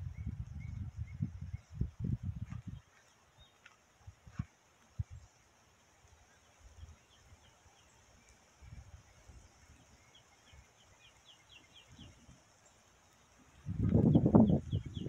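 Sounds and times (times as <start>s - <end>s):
faint high hiss: 2.8s - 15.0s
bird chirping: 6.3s - 15.0s.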